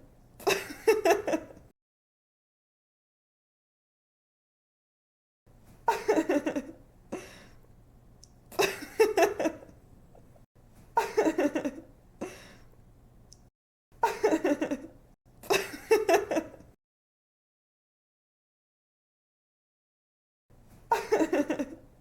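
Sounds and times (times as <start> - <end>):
woman laughing: 0.4 - 1.6, 5.9 - 6.8, 8.6 - 9.7, 11.0 - 11.9, 14.0 - 14.9, 15.5 - 16.7, 20.9 - 21.8.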